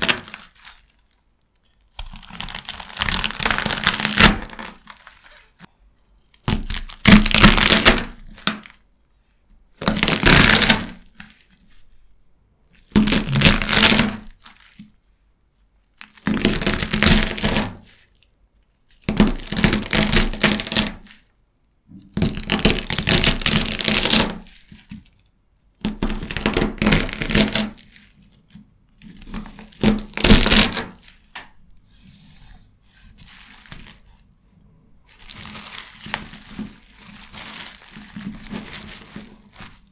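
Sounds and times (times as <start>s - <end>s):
knife cutting crunchy celery: 1.7s - 5.4s.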